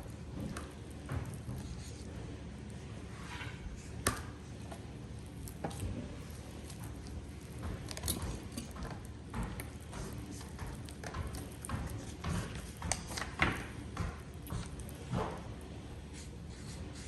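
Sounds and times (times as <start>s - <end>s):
slime squelching by hand: 3.7s - 17.0s.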